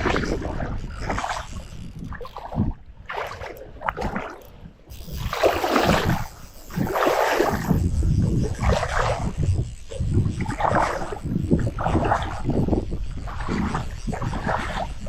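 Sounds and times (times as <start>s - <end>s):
water around a small boat: 0.0s - 15.0s
wind buffeting microphone: 0.0s - 15.0s.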